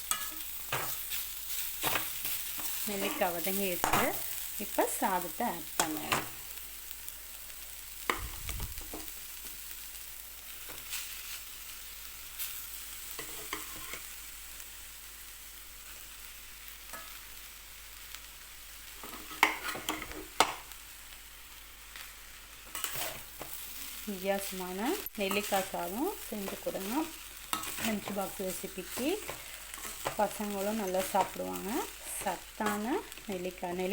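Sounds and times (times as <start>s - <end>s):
spoon stirring and scraping rice: 0.0s - 4.5s, 13.1s - 14.1s, 19.0s - 20.7s, 22.6s - 24.5s, 25.2s - 33.3s
light sizzle of frying: 0.0s - 33.9s.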